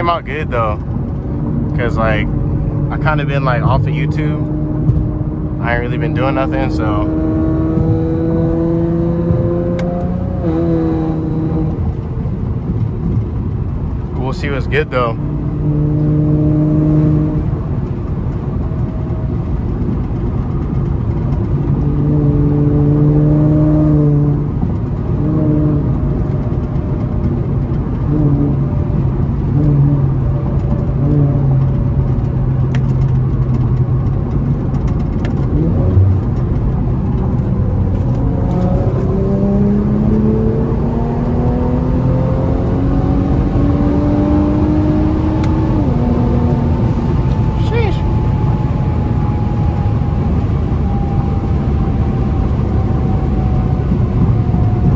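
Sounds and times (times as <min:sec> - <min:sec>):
car engine pulling: 0:00.0 - 0:54.9
road and tyre noise: 0:00.0 - 0:54.9.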